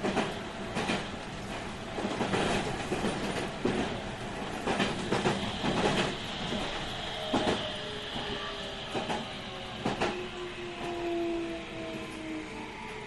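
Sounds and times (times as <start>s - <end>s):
train rolling noise: 0.0s - 13.0s.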